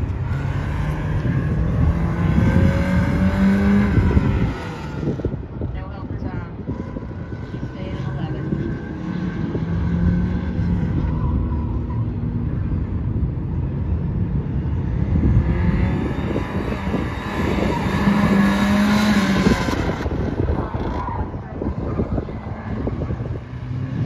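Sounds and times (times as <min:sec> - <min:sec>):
car engine revving: 0:00.0 - 0:05.6, 0:14.4 - 0:24.0.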